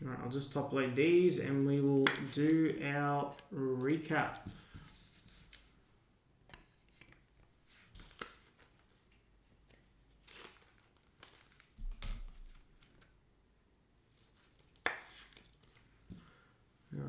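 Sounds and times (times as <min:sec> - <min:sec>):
plastic sleeves rustling: 0:00.6 - 0:05.8, 0:07.0 - 0:13.2.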